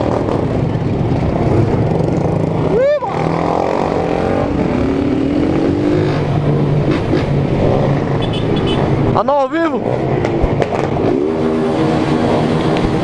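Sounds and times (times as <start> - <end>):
motorcycle engines running: 0.0 - 13.0.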